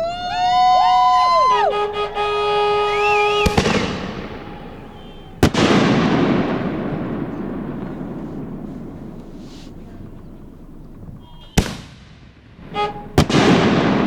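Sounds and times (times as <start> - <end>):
steady pitched tone: 0.0 - 5.4
rolling rumble: 0.0 - 14.0
fireworks shells bursting: 3.5 - 9.9, 11.5 - 14.0.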